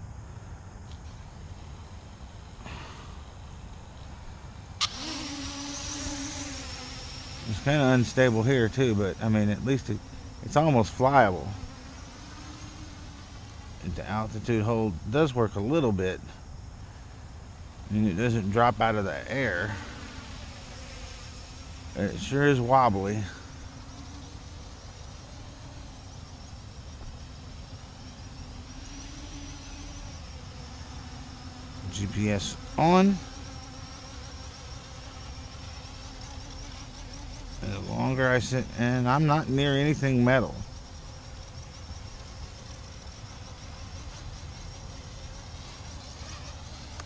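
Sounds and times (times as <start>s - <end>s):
quadcopter propellers buzzing: 1.0s - 47.0s.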